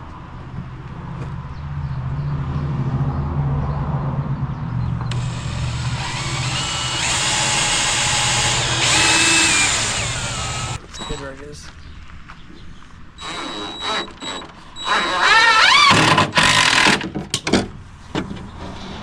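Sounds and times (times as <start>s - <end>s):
drill motor hum: 5.1s - 11.2s, 13.2s - 16.9s
drill whine: 5.1s - 11.2s, 13.2s - 16.8s.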